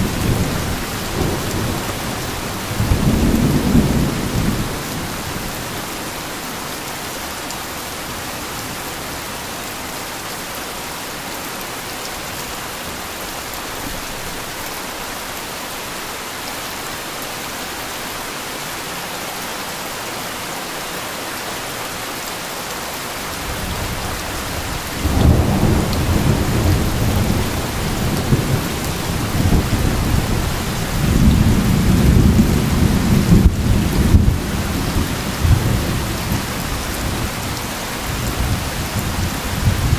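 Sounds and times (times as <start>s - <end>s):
heavy rain falling: 0.0s - 39.9s
thunder rumbling: 23.6s - 34.8s.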